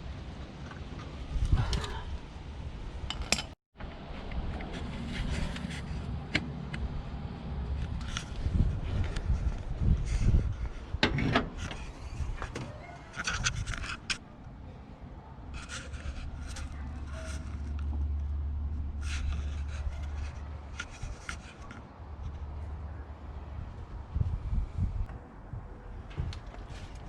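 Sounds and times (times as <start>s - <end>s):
scraping and rubbing: 4.2s - 6.8s, 7.7s - 14.4s, 15.5s - 23.0s.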